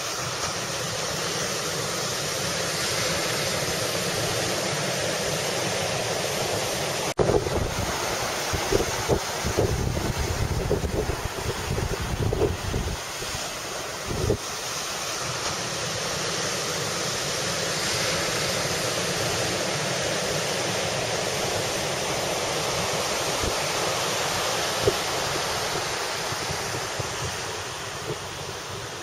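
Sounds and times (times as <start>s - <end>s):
surf breaking and rushing: 0.0s - 29.0s
wind buffeting microphone: 7.2s - 13.1s, 14.0s - 14.4s.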